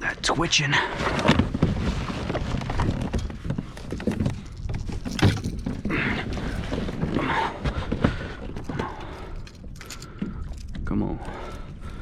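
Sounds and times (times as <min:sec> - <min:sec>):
wind rumble on microphone: 0:01.0 - 0:08.8.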